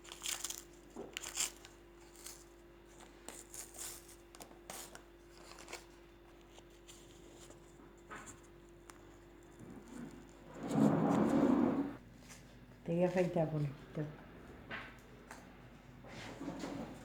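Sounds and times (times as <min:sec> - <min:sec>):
dressing crinkling and rustling: 0:00.0 - 0:13.4.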